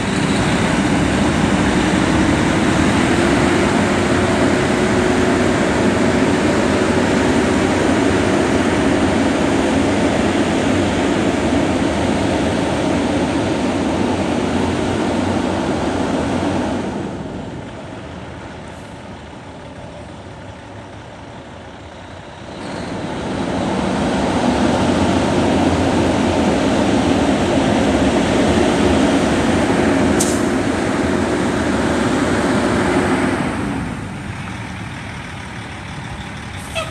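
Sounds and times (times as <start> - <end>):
diesel truck engine running: 0.0 - 22.6, 24.7 - 36.9
short sharp air hiss: 30.2 - 30.6.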